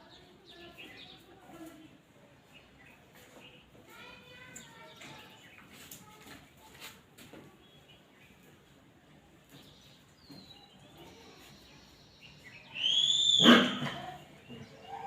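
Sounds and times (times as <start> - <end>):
faint bird chirps: 9.6 - 13.6
animal high-pitched cry: 12.8 - 14.2.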